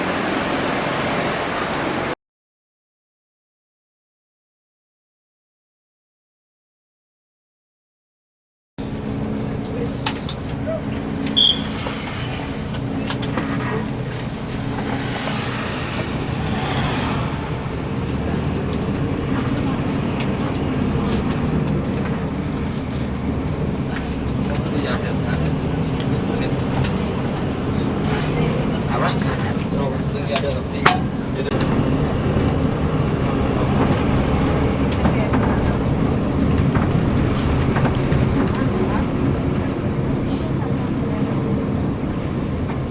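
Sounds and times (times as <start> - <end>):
bus engine running: 0.0 - 2.2, 8.8 - 42.9
road noise: 0.0 - 2.2, 8.8 - 42.9
vehicle rumble from inside: 8.8 - 42.9.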